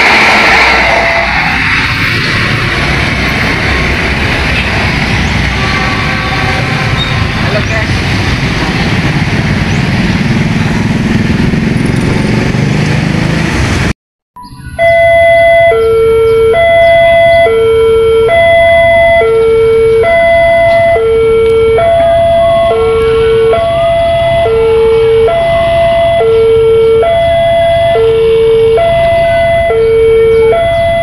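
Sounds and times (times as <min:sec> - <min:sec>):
loud rushing noise: 0:00.0 - 0:13.9
level crossing two-tone alarm: 0:14.4 - 0:31.0.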